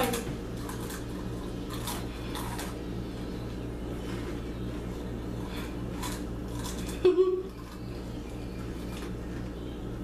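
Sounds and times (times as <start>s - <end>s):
steady low hum: 0.0s - 10.0s
chips crunched in mouth: 5.5s - 7.0s.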